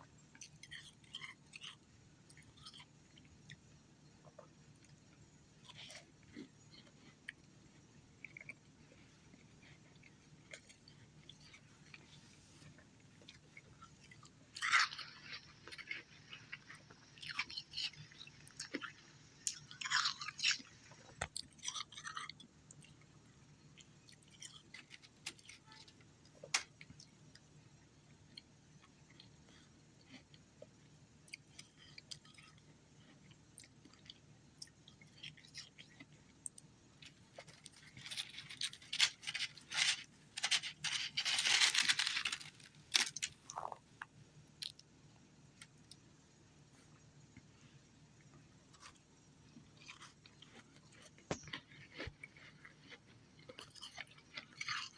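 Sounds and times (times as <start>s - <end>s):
ice crunching while chewed: 0.3s - 3.6s, 5.6s - 27.5s, 28.3s - 44.9s, 48.7s - 54.9s
faint crackling: 37.4s - 43.7s.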